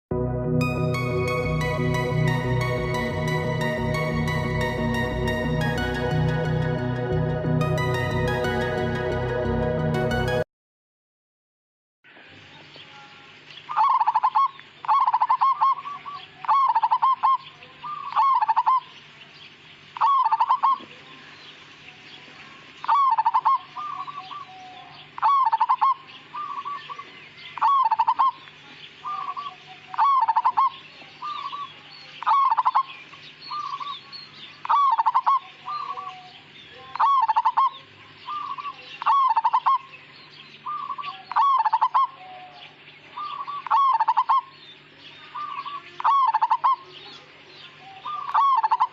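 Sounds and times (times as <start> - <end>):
dove cooing: 47.8 - 48.9.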